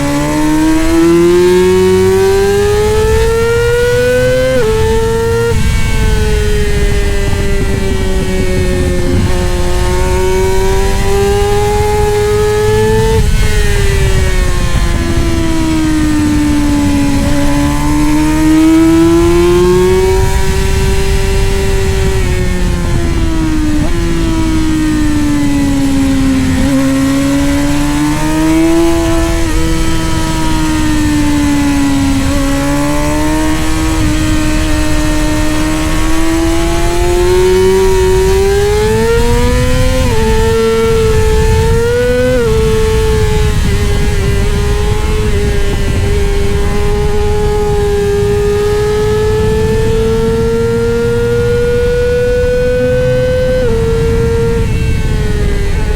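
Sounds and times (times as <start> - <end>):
motorcycle engine running hard: 0.0 - 55.9.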